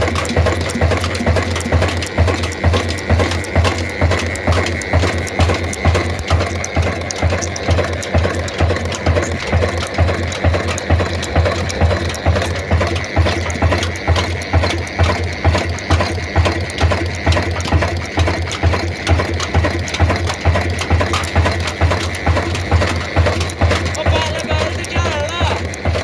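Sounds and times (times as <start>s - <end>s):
diesel engine running: 0.0s - 26.0s
mechanical clatter: 0.0s - 26.0s.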